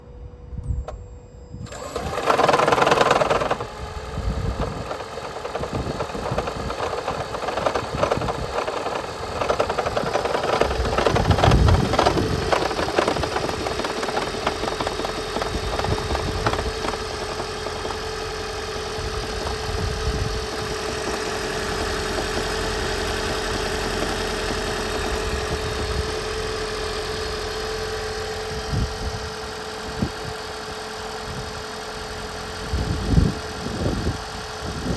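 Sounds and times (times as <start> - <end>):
steady whine: 0.0 - 34.9
car engine starting roughly: 0.7 - 34.9
engine knocking: 1.7 - 34.9.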